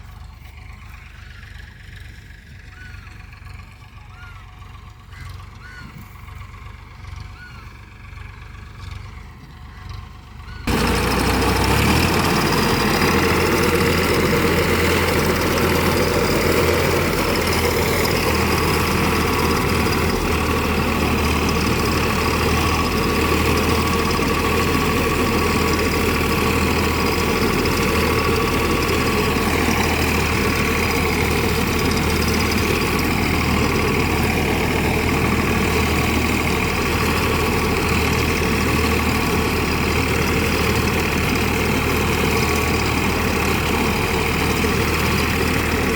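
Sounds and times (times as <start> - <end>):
tractor engine droning: 0.0 - 45.9.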